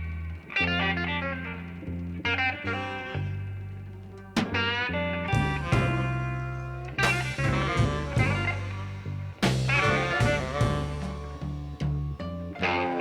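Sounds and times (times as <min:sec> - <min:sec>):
guitar picking bent notes: 0:00.0 - 0:13.0
steady bass line: 0:03.2 - 0:12.6.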